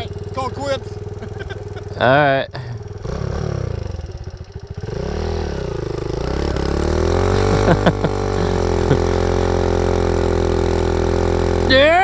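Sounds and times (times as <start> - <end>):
mini bike engine revving: 0.0 - 12.0.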